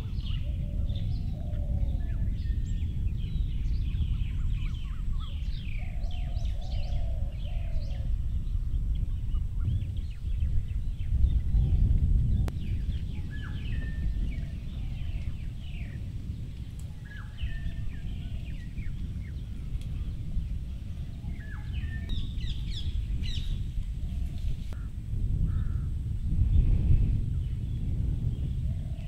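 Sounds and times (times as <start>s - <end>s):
birds chirping: 0.0s - 24.8s.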